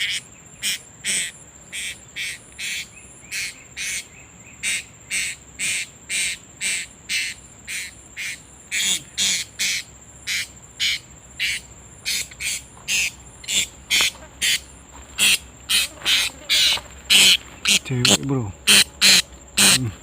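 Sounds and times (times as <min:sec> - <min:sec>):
parrots giving shrill calls: 0:04.6 - 0:14.6, 0:15.2 - 0:19.8.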